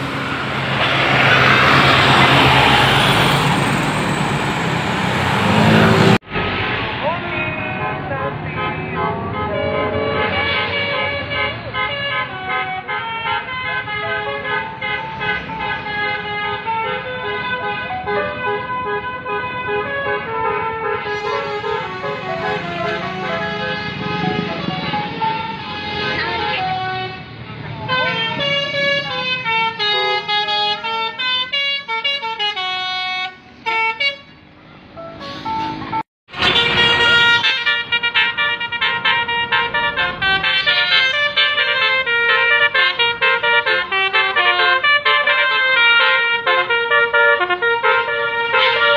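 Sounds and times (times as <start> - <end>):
low rumble of bus: 0.0 - 48.9
multi-tone musical bus horn: 7.6 - 34.5, 35.1 - 48.9.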